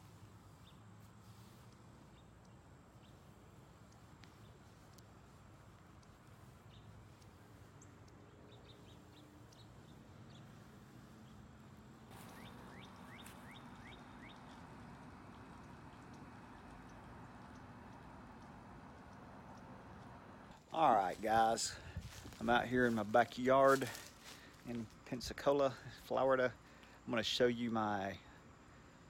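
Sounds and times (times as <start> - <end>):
quick short bird chirps: 12.1 - 14.5.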